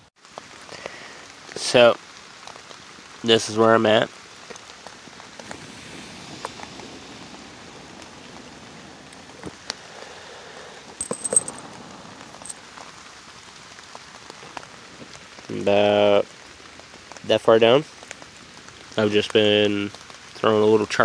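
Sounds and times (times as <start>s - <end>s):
light rain patter: 0.0s - 21.0s.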